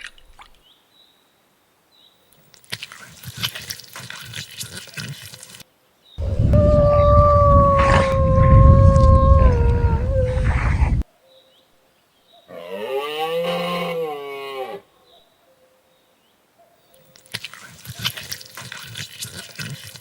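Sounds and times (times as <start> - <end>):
cow mooing: 6.2 - 11.0
held animal call: 6.2 - 11.0.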